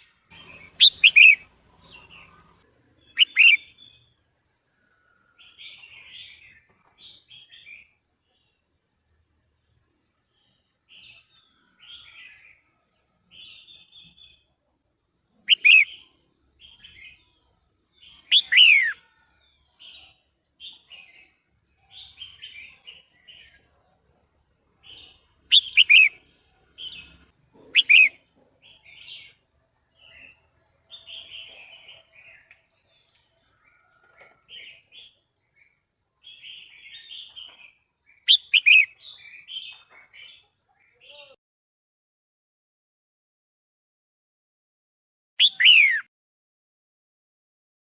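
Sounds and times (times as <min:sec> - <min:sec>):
bird chirping: 0:00.0 - 0:41.4, 0:45.4 - 0:46.1
sharp bird calls dropping in pitch: 0:00.3 - 0:01.5, 0:03.1 - 0:03.8, 0:15.5 - 0:16.0, 0:18.2 - 0:19.0, 0:25.5 - 0:26.2, 0:27.7 - 0:28.2, 0:38.3 - 0:39.7, 0:45.4 - 0:46.1.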